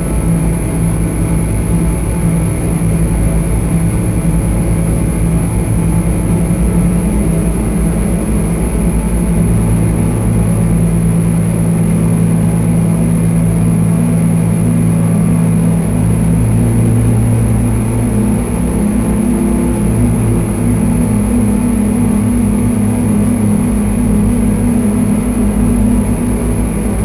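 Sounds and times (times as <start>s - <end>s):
low synthesizer drone: 0.0s - 27.0s.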